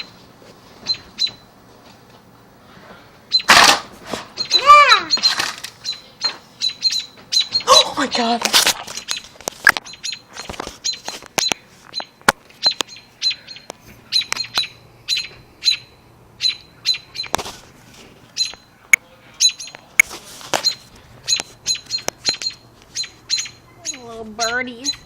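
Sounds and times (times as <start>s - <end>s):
small birds chirping: 0.8s - 1.5s, 3.2s - 3.5s, 4.3s - 17.5s, 18.2s - 25.0s.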